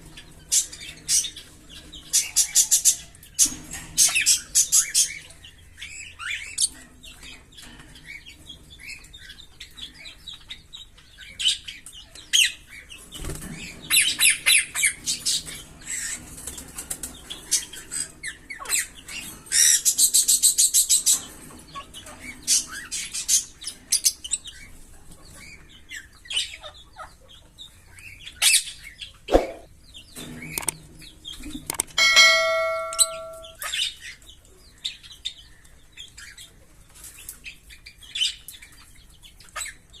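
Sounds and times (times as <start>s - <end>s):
lovebirds chirping and trilling: 0.0s - 40.0s
steady pitched tone: 32.0s - 33.6s.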